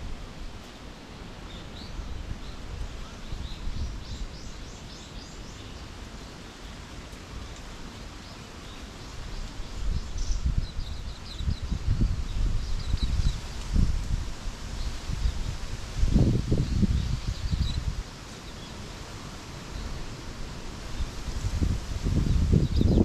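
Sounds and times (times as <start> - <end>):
songbirds chirping: 0.6 - 23.0
wind rumble on microphone: 1.6 - 5.6, 8.8 - 23.0.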